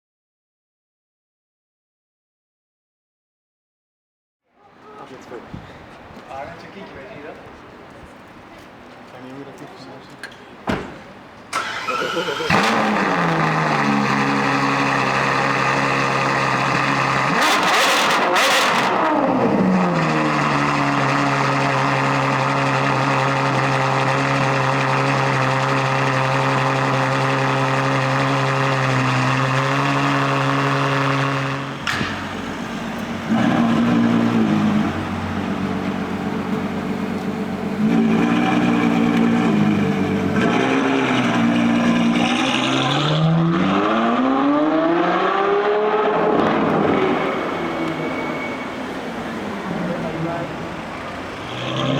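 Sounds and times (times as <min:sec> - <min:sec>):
car engine idling: 0:11.1 - 0:17.3, 0:19.6 - 0:42.9, 0:46.6 - 0:51.8
engine throttle blips: 0:11.5 - 0:51.9.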